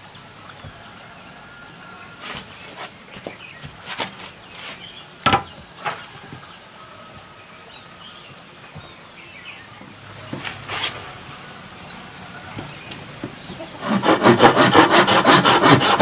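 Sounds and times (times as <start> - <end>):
bamboo clatter: 2.2 - 6.4
wooden knocks on bamboo: 5.2 - 6.4.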